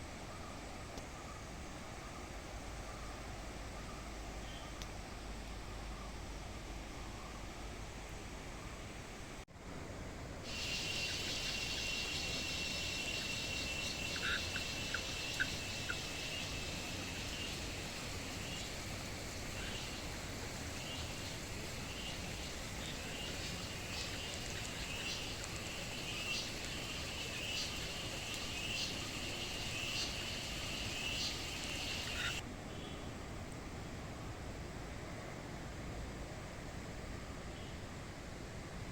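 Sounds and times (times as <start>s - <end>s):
shrill insect chirring: 10.5s - 18.7s, 20.8s - 32.4s.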